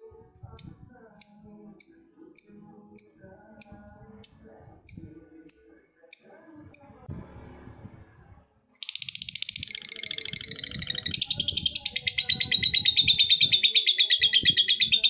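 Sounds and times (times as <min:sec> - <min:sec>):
lovebird chattering trill: 0:08.8 - 0:15.0.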